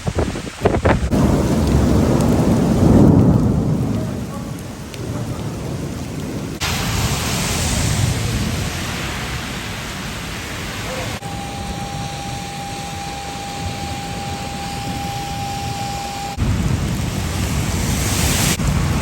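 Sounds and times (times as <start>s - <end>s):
heavy rain hissing: 0.0s - 19.0s
thunder rolling: 0.0s - 19.0s.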